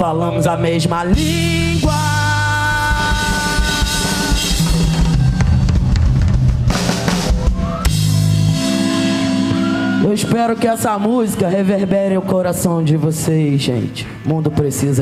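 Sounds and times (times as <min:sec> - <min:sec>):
electric guitar notes: 0:00.0 - 0:11.0
bass guitar: 0:00.0 - 0:15.0
drum kit: 0:01.0 - 0:10.2.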